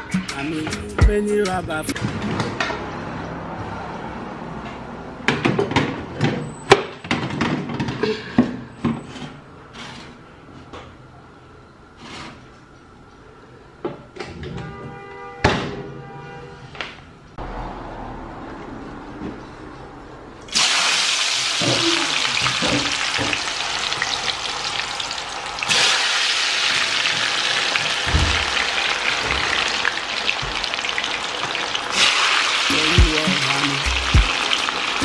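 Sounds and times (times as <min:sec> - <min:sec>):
deep-frying sizzle: 0:20.5 - 0:35.0.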